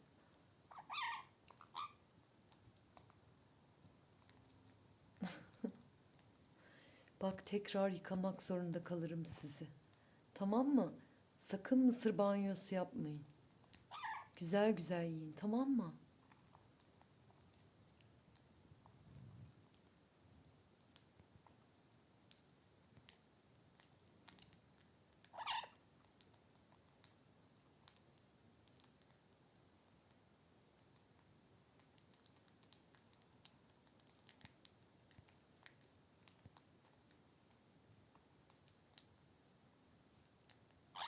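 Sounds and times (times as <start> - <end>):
parrot beaks clicking on corn: 0.0 - 7.2, 19.6 - 41.0.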